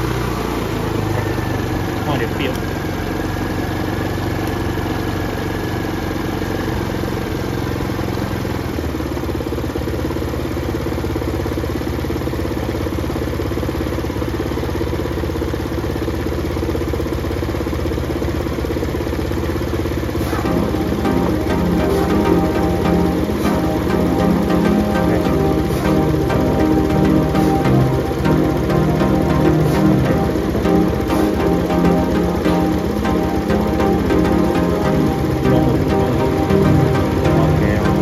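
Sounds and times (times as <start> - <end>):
scooter engine idling: 0.0 - 38.0.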